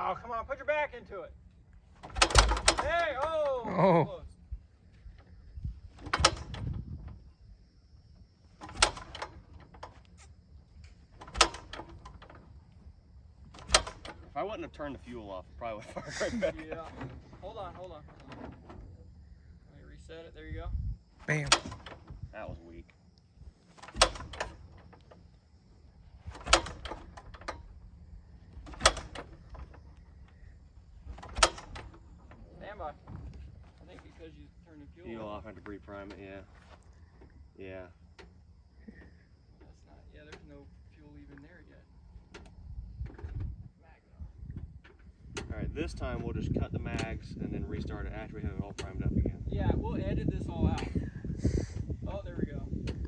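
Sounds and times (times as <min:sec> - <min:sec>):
propeller clacking: 0:01.9 - 0:03.6
propeller engine clacks: 0:02.0 - 0:03.6, 0:08.2 - 0:20.6, 0:44.2 - 0:51.4.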